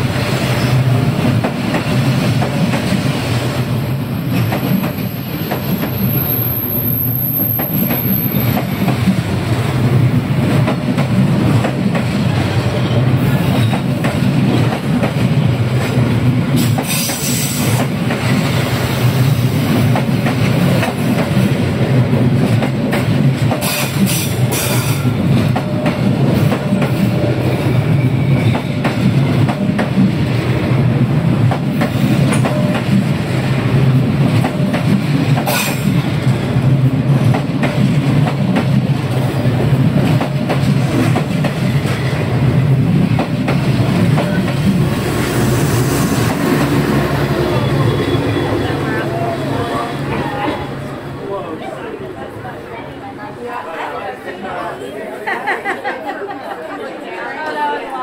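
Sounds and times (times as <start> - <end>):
train cars rumbling: 0.0 - 54.7
high wheel squeals: 45.6 - 50.8.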